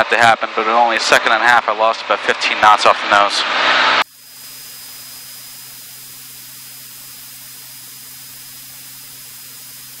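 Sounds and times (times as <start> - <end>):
electronic hiss: 4.0 - 10.0
faint high whine: 4.0 - 10.0.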